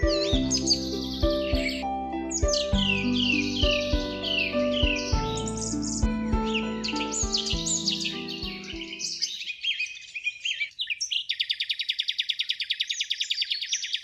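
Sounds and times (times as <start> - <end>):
soft background music: 0.0 - 9.3
songbirds chirping and trilling: 0.0 - 14.0.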